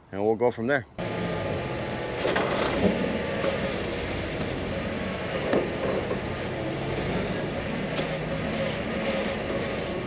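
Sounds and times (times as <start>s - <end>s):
engine running: 1.0s - 10.0s.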